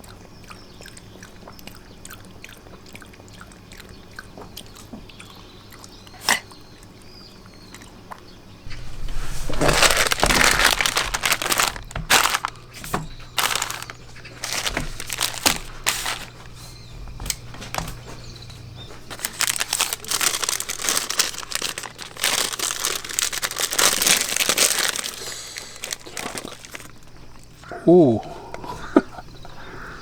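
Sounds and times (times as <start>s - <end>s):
crinkling and rustling: 8.6s - 27.6s.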